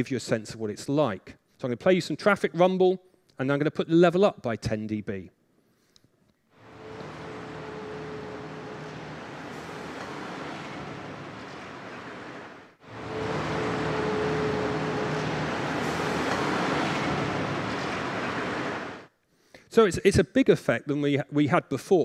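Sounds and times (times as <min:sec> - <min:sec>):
road traffic rumble: 0:06.6 - 0:19.1.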